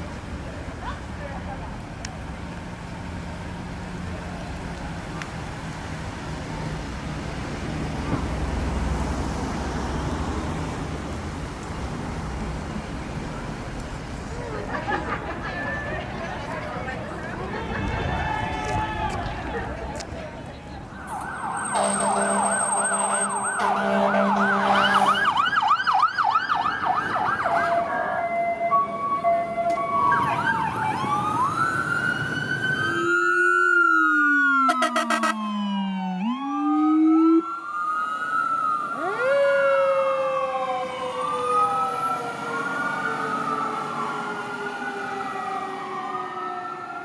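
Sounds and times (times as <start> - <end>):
emergency sirens yelping and wailing: 0.0 - 47.0.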